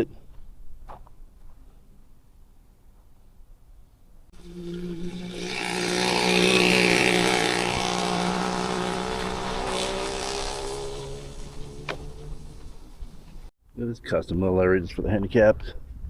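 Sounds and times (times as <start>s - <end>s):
motor vehicle passing: 4.4s - 13.5s.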